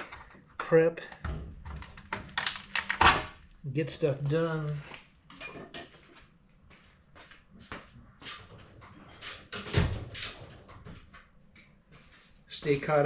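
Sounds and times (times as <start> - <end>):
rustling of handled wiring: 1.2 - 3.2.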